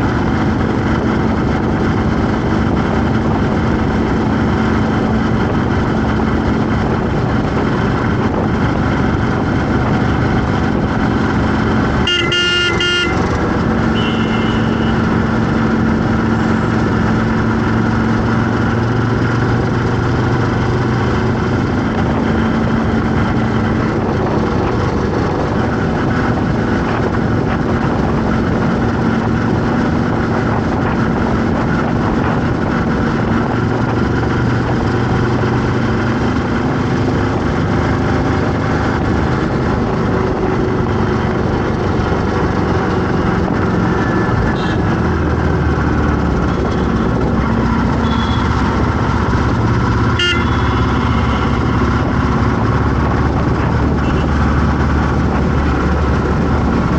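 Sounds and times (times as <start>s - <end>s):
heavy road traffic: 0.0s - 56.9s
higher fainter horn: 12.0s - 15.2s, 50.1s - 52.0s
vehicle horn blaring: 12.0s - 15.2s, 44.0s - 44.9s, 47.8s - 48.7s, 50.1s - 52.1s, 54.0s - 54.4s.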